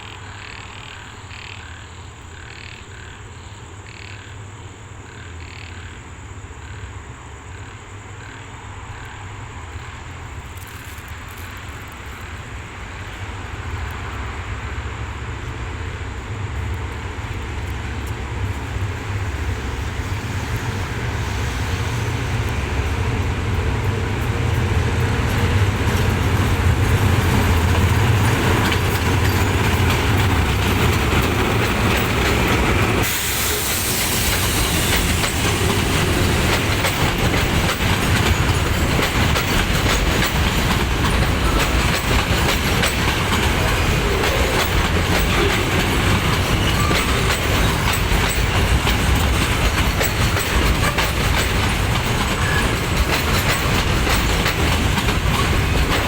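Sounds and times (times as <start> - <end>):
diesel locomotive engine rumbling: 0.0 - 56.0
train wheels clacking over rail joints: 10.3 - 14.2, 16.6 - 56.0.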